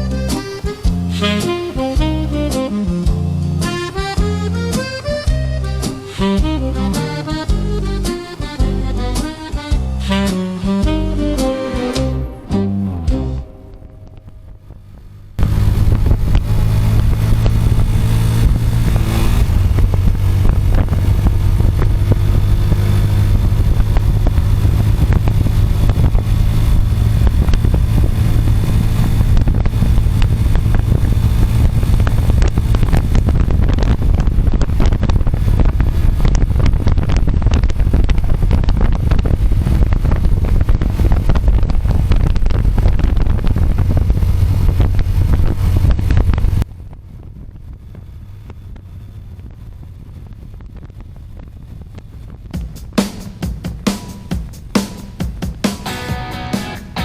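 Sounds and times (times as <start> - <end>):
motorcycle engine running: 0.0 - 57.0
wind buffeting microphone: 10.8 - 55.7.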